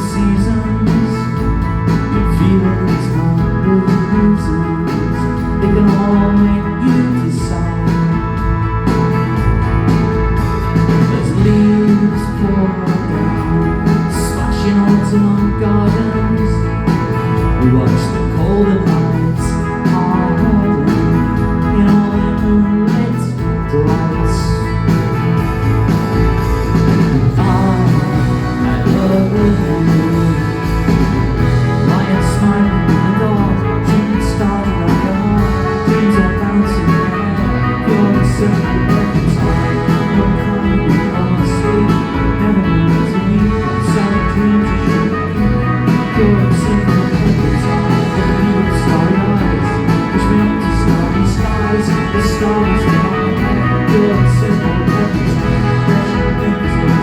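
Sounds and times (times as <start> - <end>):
live rock band playing: 0.0 - 57.0
steady drum beat: 0.0 - 57.0.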